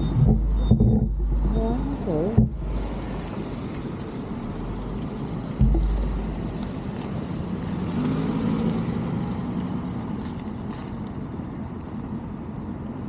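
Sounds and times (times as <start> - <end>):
vehicle engine and road noise: 0.0 - 13.0
low thump: 2.4 - 2.8, 5.6 - 6.6.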